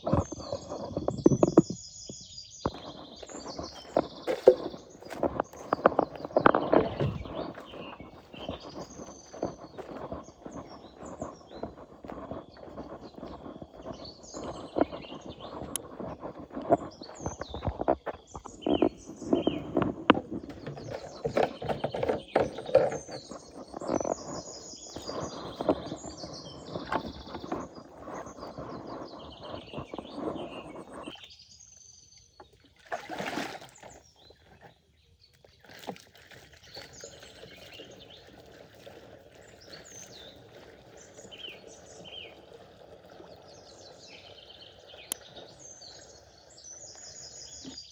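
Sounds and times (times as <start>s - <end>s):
rustling and knocking handling noises: 0.0s - 31.1s
birds chirping: 0.0s - 47.9s.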